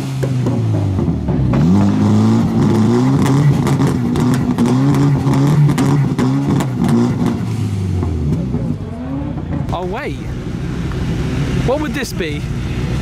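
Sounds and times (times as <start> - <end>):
car engine revving: 0.0 - 13.0
exhaust cracks: 0.0 - 13.0.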